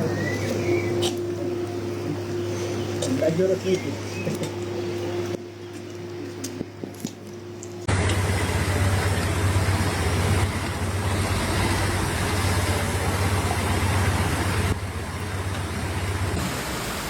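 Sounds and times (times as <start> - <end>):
low engine-like rumble: 7.8 - 17.0
heavy rain and rushing water: 7.9 - 17.0.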